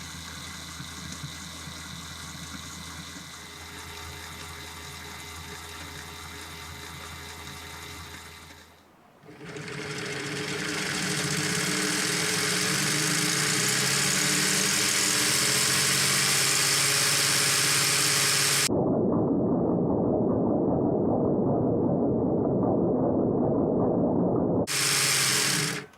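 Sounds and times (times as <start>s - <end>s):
plastic engine model whirring and rattling: 0.0s - 18.7s, 24.7s - 25.9s.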